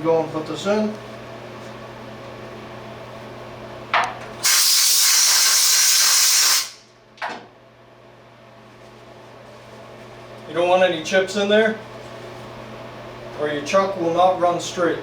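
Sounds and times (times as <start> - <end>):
compressed air blow gun hissing: 4.4 - 6.8.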